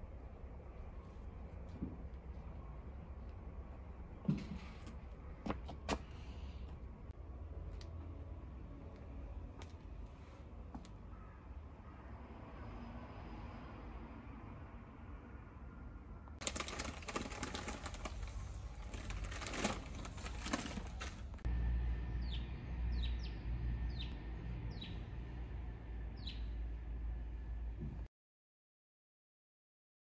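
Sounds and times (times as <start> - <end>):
low steady rumble: 0.0 - 5.4
rustling crackle: 16.4 - 21.4.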